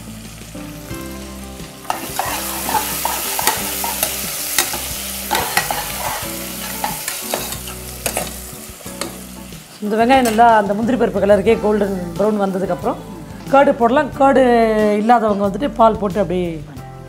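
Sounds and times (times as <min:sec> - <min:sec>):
onions sizzling in hot fat: 0:00.0 - 0:14.1
metal ladle scraping a pot: 0:01.9 - 0:08.4.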